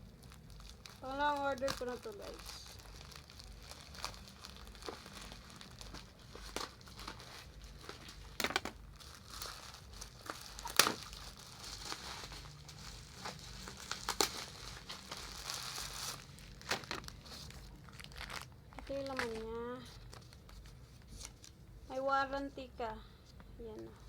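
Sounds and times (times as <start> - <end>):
plastic packaging crinkling: 0.0 - 21.6
plastic snapping: 8.4 - 8.8.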